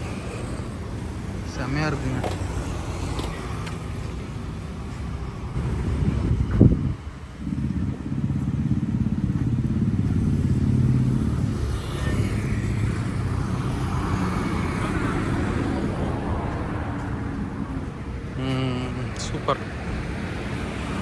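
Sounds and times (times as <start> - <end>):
vehicle engine running: 5.5 - 19.6.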